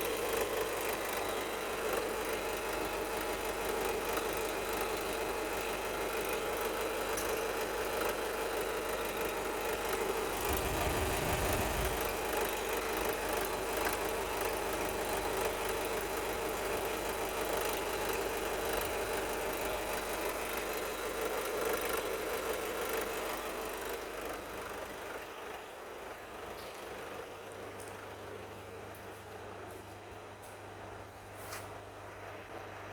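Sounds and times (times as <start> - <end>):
diesel engine idling: 10.4 - 12.2.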